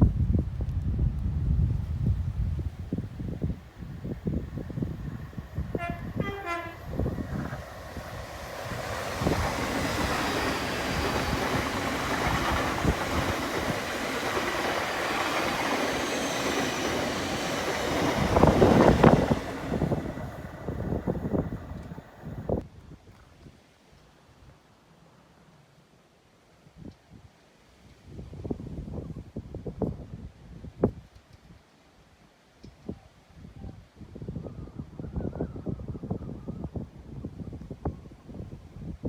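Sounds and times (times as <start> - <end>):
train rushing past on rails: 0.2 - 22.6
train horn: 5.6 - 7.6.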